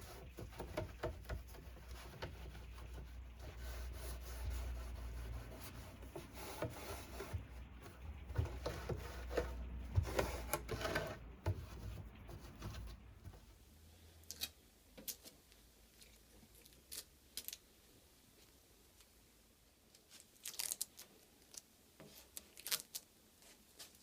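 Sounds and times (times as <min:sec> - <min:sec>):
knocks and clicks from handling: 0:00.0 - 0:13.5
wood being rubbed by hand: 0:00.0 - 0:13.5.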